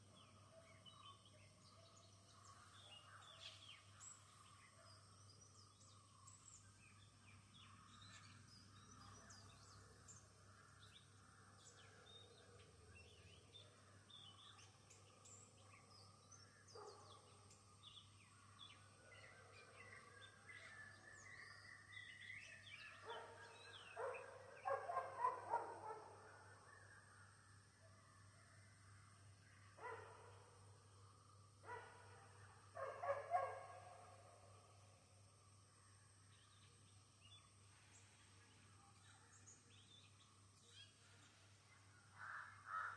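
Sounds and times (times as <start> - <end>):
birds chirping: 0.8 - 26.4, 29.6 - 34.6
dog barking: 16.8 - 17.2, 23.0 - 26.3, 29.8 - 30.4, 31.7 - 34.2.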